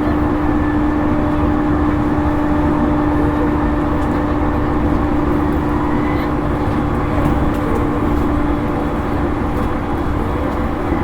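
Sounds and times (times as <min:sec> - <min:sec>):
wheel-on-rail rumble: 0:00.0 - 0:11.0.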